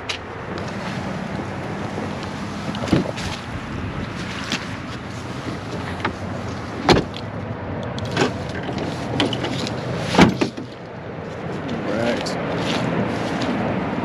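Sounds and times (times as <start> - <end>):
knocks and clunks: 2.7 - 3.5, 5.5 - 7.3, 8.0 - 10.8.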